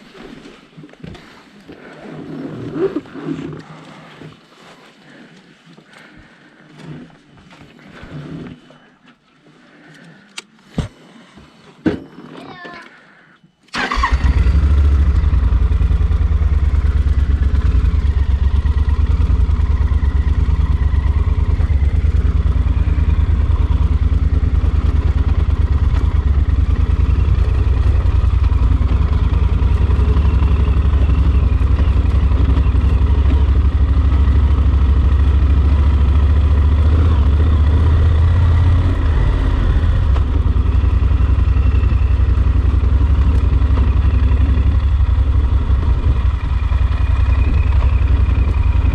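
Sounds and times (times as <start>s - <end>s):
motorcycle engine running: 13.8s - 48.9s.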